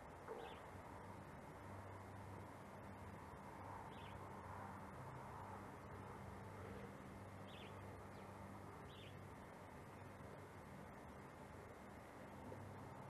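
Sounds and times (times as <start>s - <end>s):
low hum and hiss: 0.0s - 13.0s
faint bird chirps: 0.3s - 0.7s, 3.9s - 4.2s, 7.4s - 8.3s, 8.9s - 9.2s.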